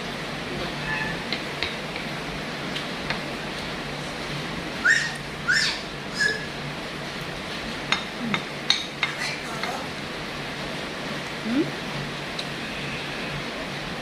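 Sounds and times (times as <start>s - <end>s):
bird upward-sweeping calls: 4.8s - 6.5s.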